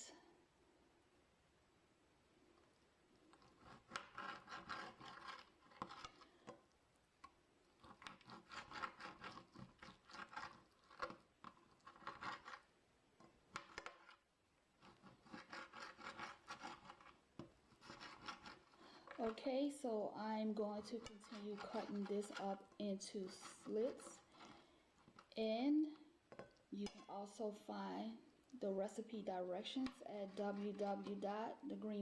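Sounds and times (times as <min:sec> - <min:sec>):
knife sawing through chicken: 0:03.5 - 0:06.2, 0:07.8 - 0:11.0, 0:14.8 - 0:17.1, 0:17.7 - 0:18.9, 0:20.9 - 0:24.6, 0:30.2 - 0:31.2.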